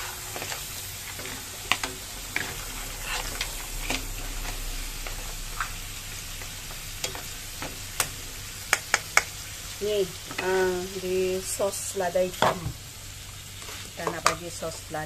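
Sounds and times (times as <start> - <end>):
utensils clacking against pan: 0.0 - 4.1, 7.0 - 9.3
crabs sizzling in a wok: 0.0 - 15.0.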